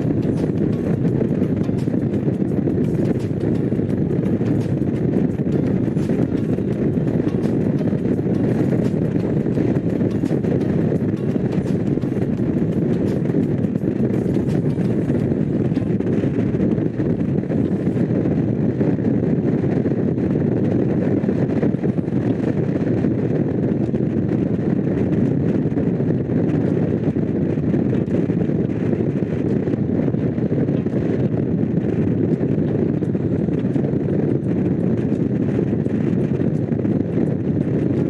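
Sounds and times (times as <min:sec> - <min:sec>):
motorcycle engine running: 0:00.0 - 0:18.8
wind noise on microphone: 0:00.0 - 0:38.0.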